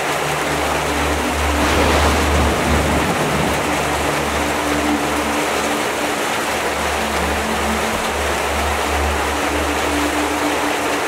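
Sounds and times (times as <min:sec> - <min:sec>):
background music low notes: 0:00.0 - 0:11.0
heavy rain on paving and leaves: 0:00.0 - 0:11.0.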